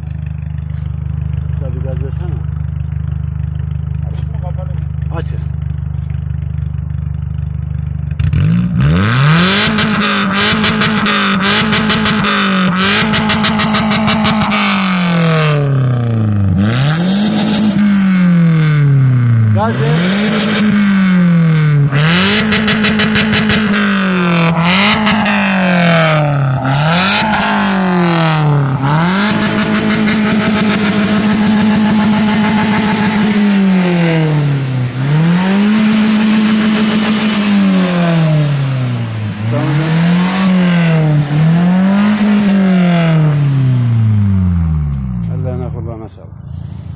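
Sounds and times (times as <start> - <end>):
car engine revving: 0.0 - 46.9.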